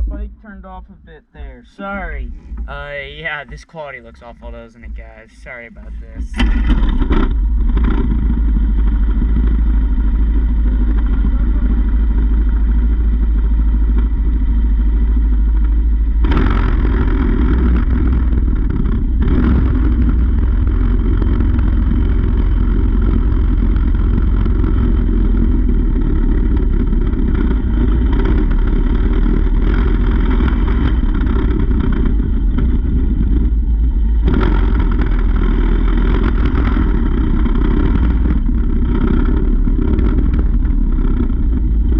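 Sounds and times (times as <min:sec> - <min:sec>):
wind rumble on microphone: 0:01.4 - 0:41.9
small engine running: 0:05.8 - 0:41.9.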